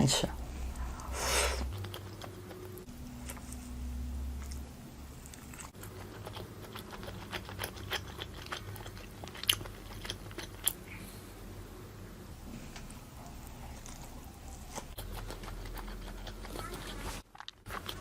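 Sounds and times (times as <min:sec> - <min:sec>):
chewing crunchy food: 0:01.6 - 0:03.7, 0:04.4 - 0:10.9, 0:13.4 - 0:18.0.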